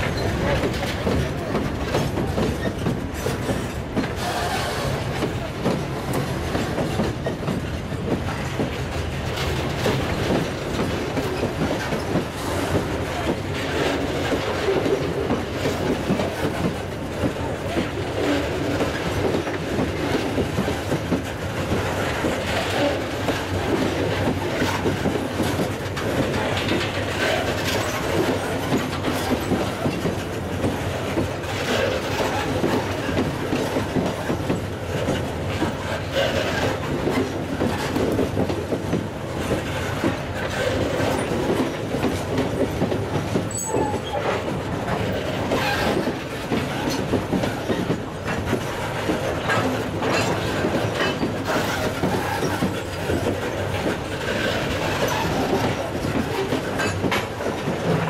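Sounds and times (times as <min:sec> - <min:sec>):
steel wheels rumbling on rail: 0:00.0 - 0:58.0
wheels clicking over rail joints: 0:00.0 - 0:58.0.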